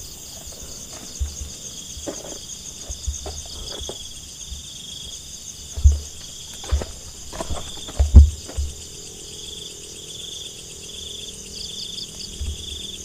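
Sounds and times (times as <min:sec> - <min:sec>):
dull low thumps: 0:00.0 - 0:04.7, 0:05.7 - 0:08.9
crickets chirring: 0:00.0 - 0:13.0.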